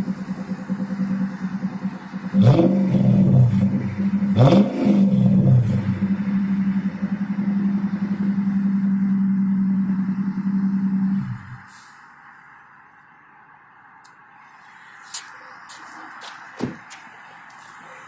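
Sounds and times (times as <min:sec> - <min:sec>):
car engine revving and idling: 0:00.0 - 0:12.8.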